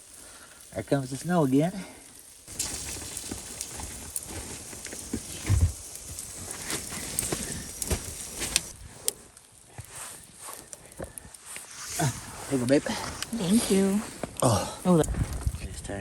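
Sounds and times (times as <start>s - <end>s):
gusty blizzard wind: 11.9s - 16.0s
wind rumble on microphone: 15.0s - 16.0s.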